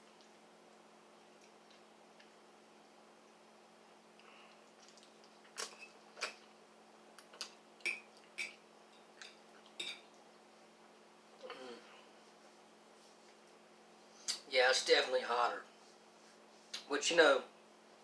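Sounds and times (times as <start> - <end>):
eating clicks and smacks: 4.2 - 6.5, 7.1 - 8.6.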